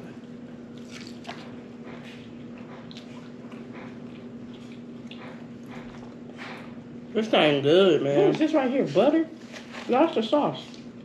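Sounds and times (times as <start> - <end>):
people chewing and smacking: 0.0 - 6.8
steady low hum: 0.0 - 11.0.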